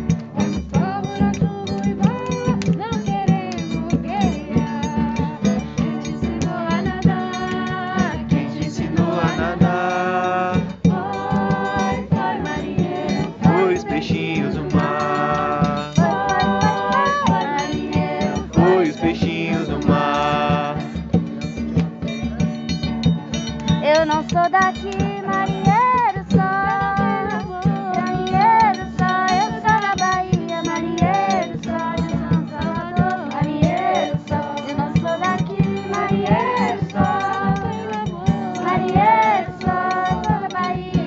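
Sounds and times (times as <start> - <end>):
group singing folk song: 0.0 - 21.8, 24.4 - 41.0
instruments with rhythmic beat: 0.0 - 41.0.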